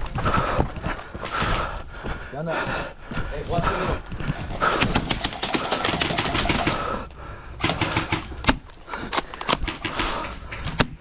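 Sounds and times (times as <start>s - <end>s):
airsoft guns firing bursts: 4.6s - 11.0s.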